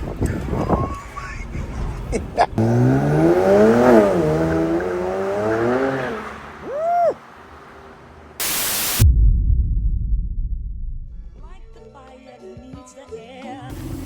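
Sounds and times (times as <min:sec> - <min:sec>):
rough road noise with knocks: 0:00.0 - 0:08.4
car exhaust revving: 0:01.9 - 0:06.7.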